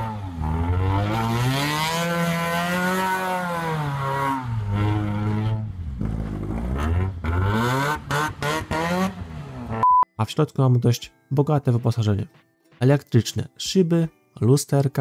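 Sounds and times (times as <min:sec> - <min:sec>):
car engine revving: 0:00.0 - 0:09.8.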